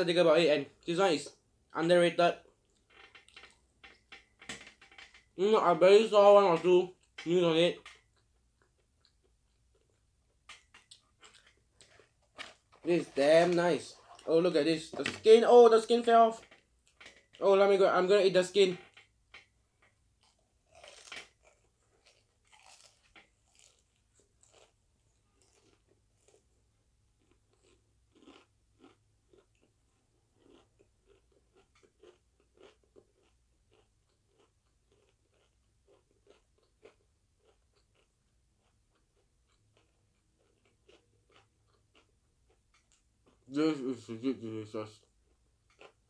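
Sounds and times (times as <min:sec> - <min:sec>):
crunching fried chicken skin: 0:20.2 - 0:26.4, 0:27.2 - 0:29.7.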